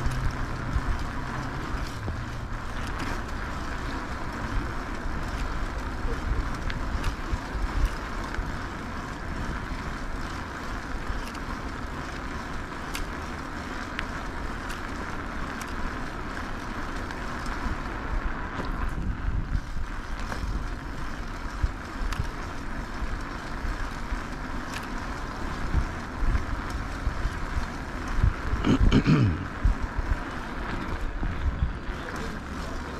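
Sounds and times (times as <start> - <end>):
low rumble from riding: 0.0 - 32.9
wind buffeting microphone: 15.2 - 32.9
faint clicks: 21.3 - 28.2.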